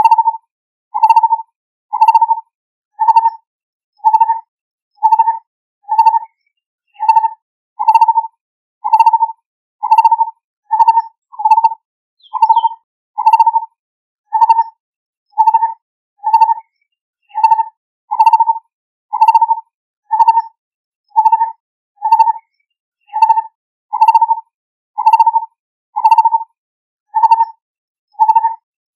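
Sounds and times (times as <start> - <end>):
barbet calling: 9.8 - 13.6.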